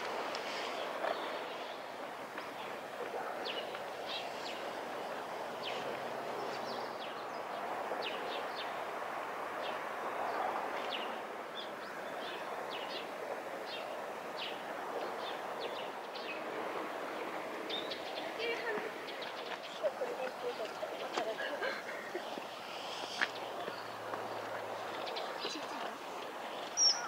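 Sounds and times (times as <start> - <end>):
small birds chirping: 9.6 - 27.0.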